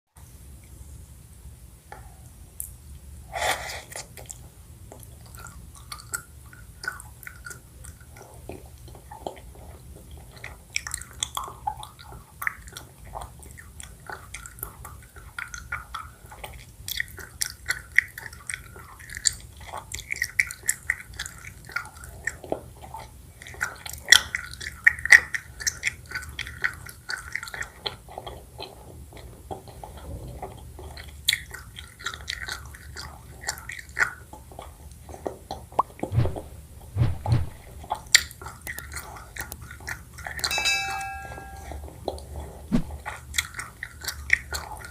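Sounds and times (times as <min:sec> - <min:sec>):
chewing honeycomb: 0:03.9 - 0:36.0, 0:38.0 - 0:40.4, 0:43.3 - 0:44.9
low thumps: 0:36.1 - 0:38.1.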